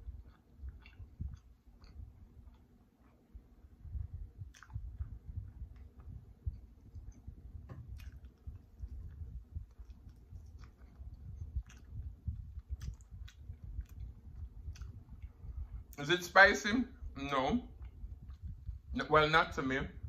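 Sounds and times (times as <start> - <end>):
wet mouth clicks: 0.0 - 3.2, 4.4 - 7.3, 7.9 - 15.7
chewing crispy chicken: 0.0 - 19.6.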